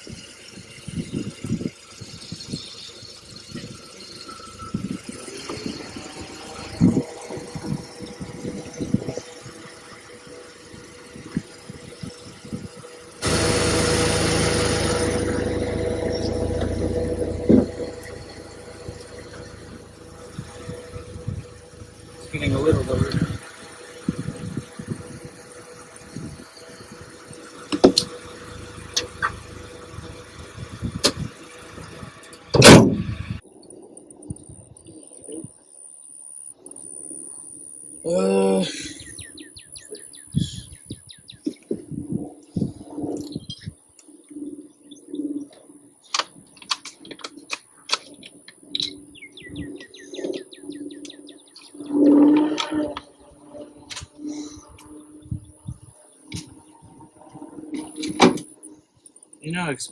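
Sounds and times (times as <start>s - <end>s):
car engine running: 0.0s - 33.4s
birds chirping: 0.2s - 33.7s, 48.7s - 52.2s
loud low sound: 13.1s - 33.4s
loud thump: 32.5s - 33.4s.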